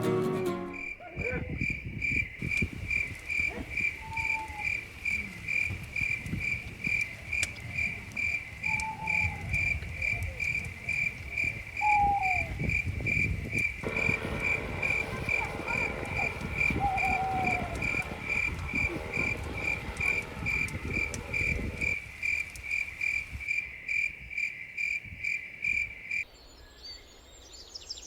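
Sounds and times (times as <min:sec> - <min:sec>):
cricket chirping: 0:00.0 - 0:26.4
low uneven rumble: 0:13.8 - 0:22.0
short falling calls: 0:13.8 - 0:22.0.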